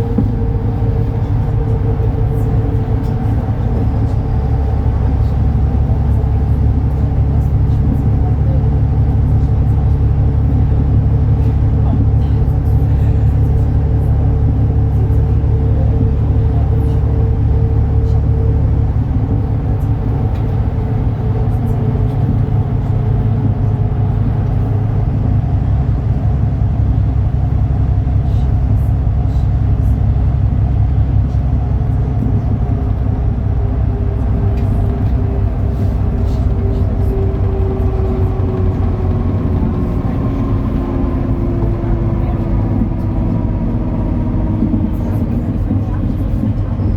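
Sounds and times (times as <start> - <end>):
bus diesel engine droning: 0.0 - 46.9.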